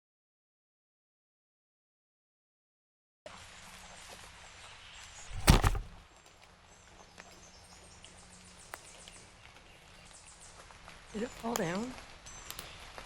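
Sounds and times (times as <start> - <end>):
faint outdoor background: 3.3 - 13.0
tripod falling thud: 5.3 - 6.0.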